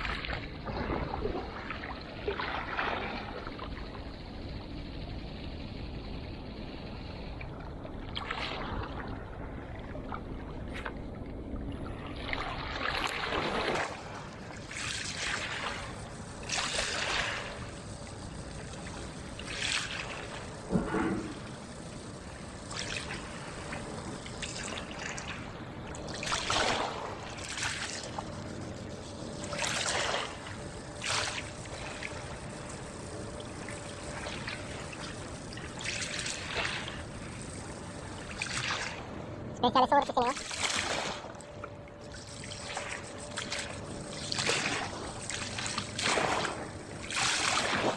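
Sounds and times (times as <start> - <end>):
water lapping and splashing: 0.0 - 47.9.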